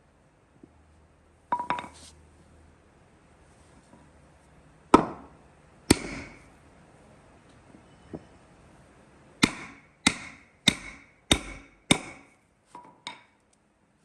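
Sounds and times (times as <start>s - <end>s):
hand tool striking wood: 5.0s - 5.3s, 5.9s - 6.4s, 9.4s - 13.3s.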